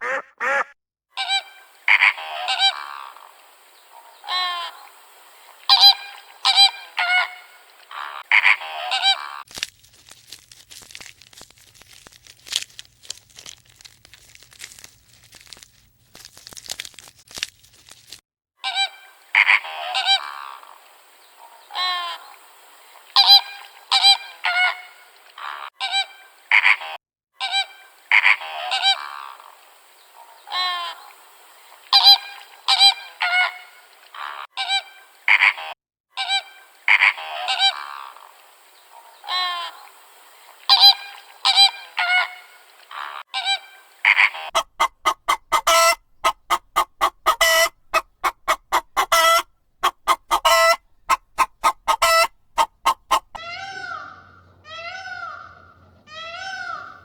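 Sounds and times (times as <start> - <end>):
geese honking: 0.0 - 0.7, 44.4 - 55.7
crackling rustle: 9.5 - 18.2.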